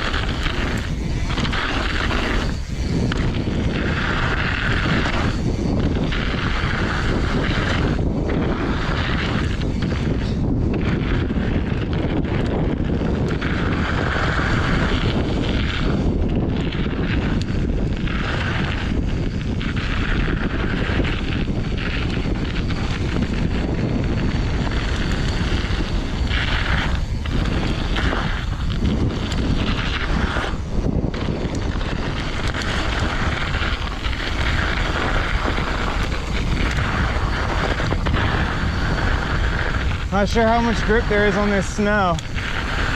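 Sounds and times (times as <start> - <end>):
bike tyres rolling over dirt: 0.0 - 42.9
wind buffeting microphone: 0.0 - 42.9.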